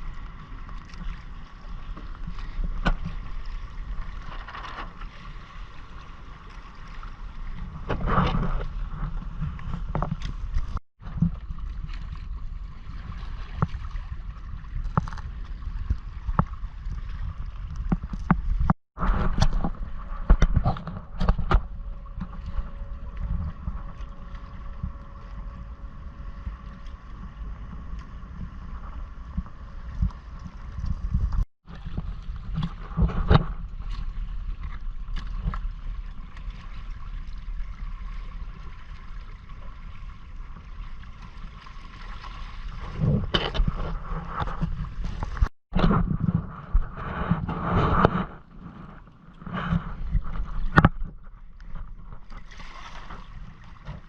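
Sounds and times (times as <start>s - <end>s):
water splashing against hull: 0.0s - 54.0s
wind buffeting microphone: 7.4s - 34.6s.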